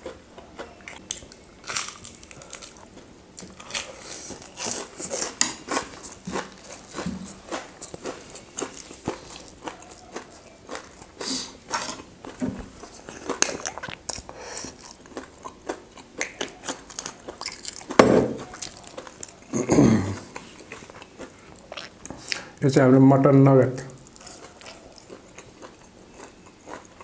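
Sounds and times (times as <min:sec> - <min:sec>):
person chewing food: 0:00.0 - 0:22.6, 0:24.0 - 0:27.0.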